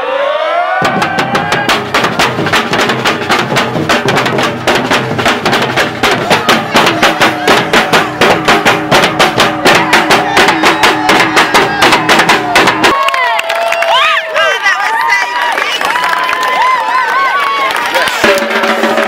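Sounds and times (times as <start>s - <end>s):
samba percussion band: 0.8s - 13.0s, 16.6s - 19.0s.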